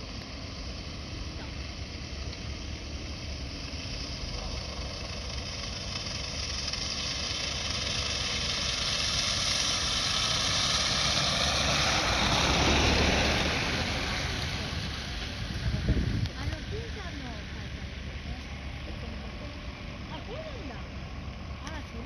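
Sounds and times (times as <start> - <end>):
truck engine driving past: 0.0 - 22.0.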